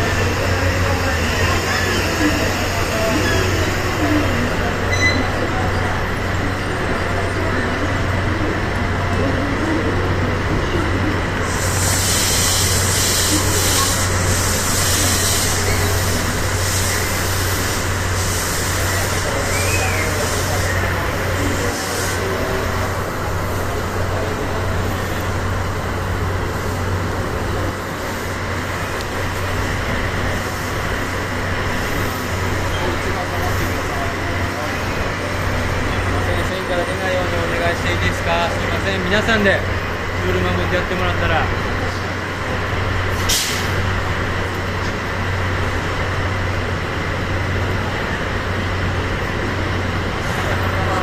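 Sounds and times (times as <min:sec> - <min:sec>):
diesel locomotive idling: 0:00.0 - 0:51.0
air hiss: 0:11.4 - 0:20.7, 0:43.1 - 0:43.8.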